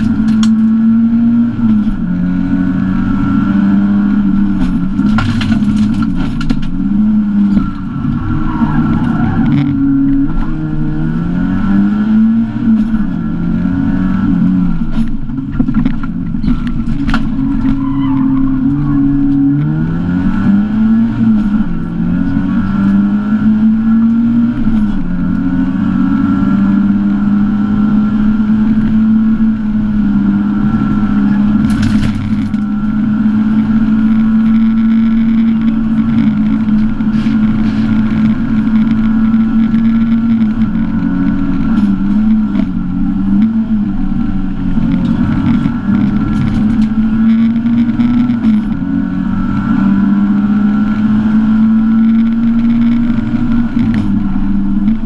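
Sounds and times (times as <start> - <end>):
rally car engine at high revs: 0.0 - 55.0.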